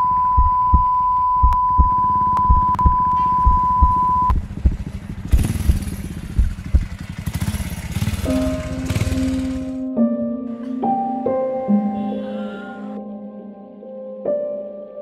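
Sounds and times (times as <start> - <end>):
low thumps: 0.3 - 7.0
motorcycle engine pulling away: 4.0 - 9.9.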